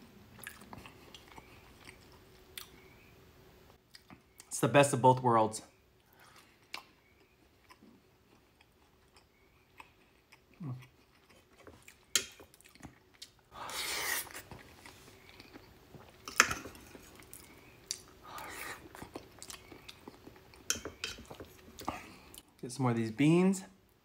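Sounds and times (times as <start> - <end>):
person chewing wet mouth sounds: 0.4 - 2.9, 6.0 - 22.5.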